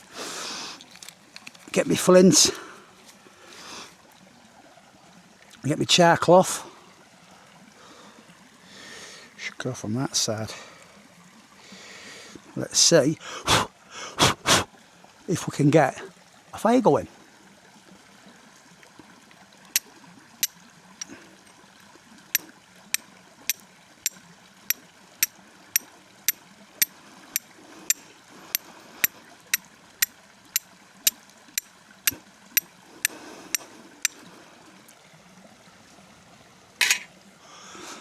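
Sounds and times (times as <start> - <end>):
stream rushing: 0.0 - 4.2, 22.3 - 34.8, 35.7 - 38.0
flint and steel striking: 36.8 - 37.1.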